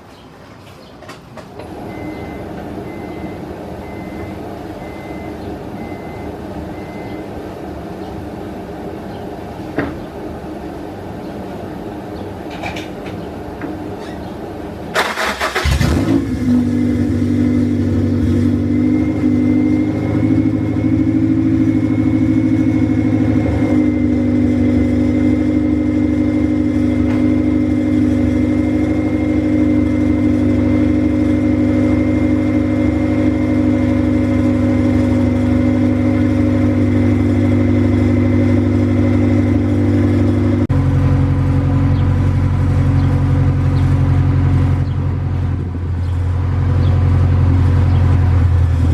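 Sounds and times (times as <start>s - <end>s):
car engine starting and idling: 14.6s - 48.9s.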